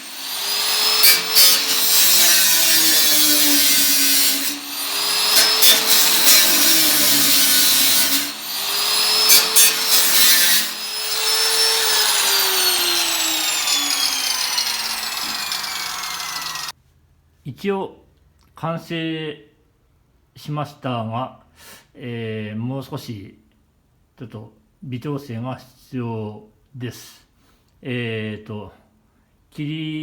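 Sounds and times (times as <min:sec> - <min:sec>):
harsh hiss of cut metal: 0:00.0 - 0:16.1
power tool motor whine: 0:00.0 - 0:16.7.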